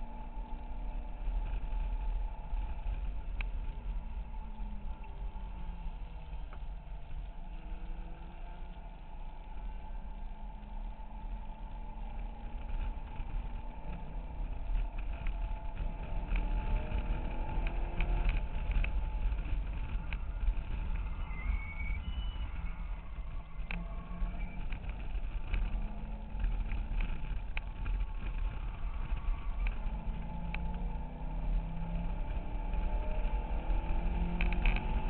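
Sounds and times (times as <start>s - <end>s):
car engine accelerating and lifting: 23.2s - 35.0s.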